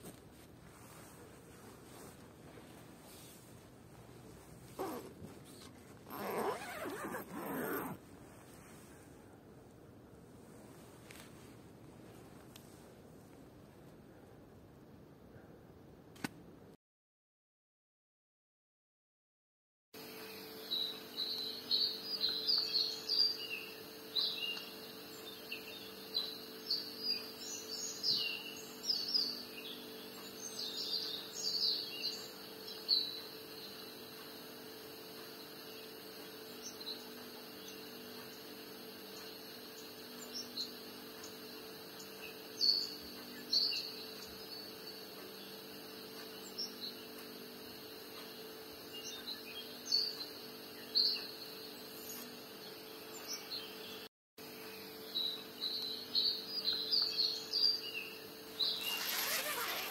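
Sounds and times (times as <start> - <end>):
songbirds chirping: 0.8 - 9.2, 20.1 - 59.9.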